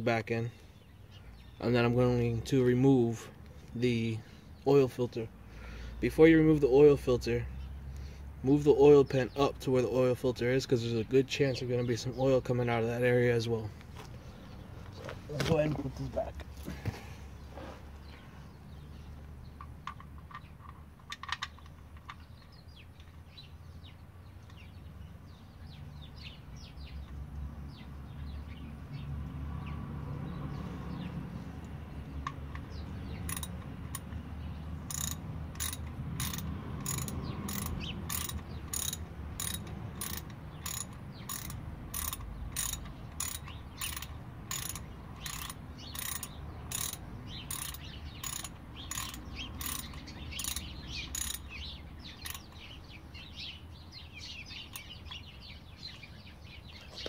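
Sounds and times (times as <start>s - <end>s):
socket ratchet clicking: 31.6s - 34.1s, 34.9s - 52.7s, 54.6s - 55.2s.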